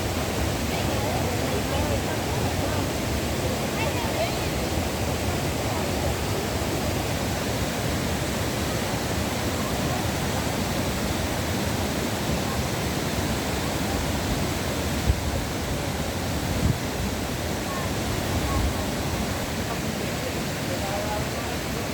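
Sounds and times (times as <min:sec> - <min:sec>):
waterfall splashing: 0:00.0 - 0:21.9.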